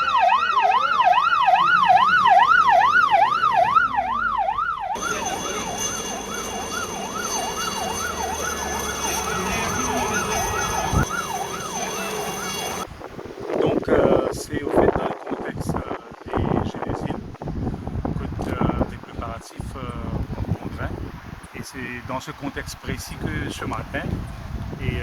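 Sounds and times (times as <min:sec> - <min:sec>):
emergency vehicle siren wailing: 0:00.0 - 0:12.9.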